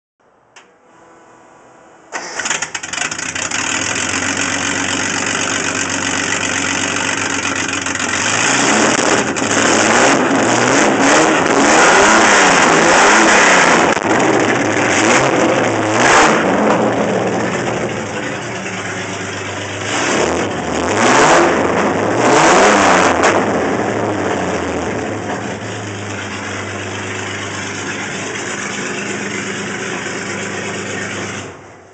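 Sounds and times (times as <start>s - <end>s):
car engine idling: 2.0s - 31.9s
starter motor cranking: 2.2s - 4.8s
car engine revving: 2.2s - 31.7s.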